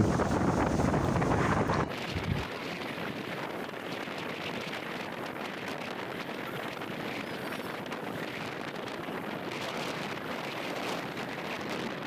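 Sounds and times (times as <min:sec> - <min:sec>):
rough surf rushing: 0:00.0 - 0:03.8
strong wind on microphone: 0:00.0 - 0:12.0.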